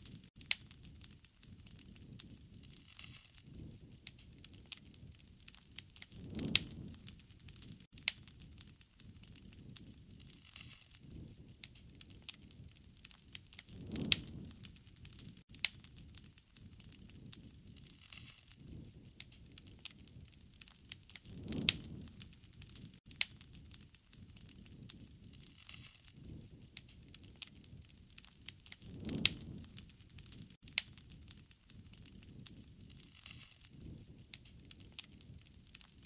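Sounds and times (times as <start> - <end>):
wood fire crackling: 0.0 - 36.0
flame whoosh: 1.7 - 8.6, 9.4 - 15.4, 17.0 - 23.0, 24.4 - 30.6.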